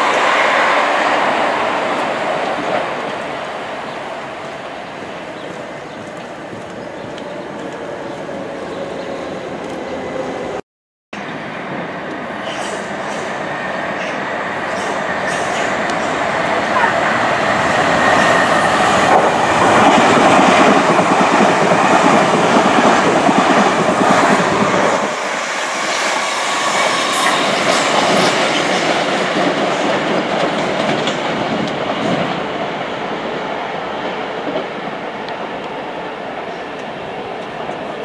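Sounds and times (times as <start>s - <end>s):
train running past: 11.2s - 38.0s.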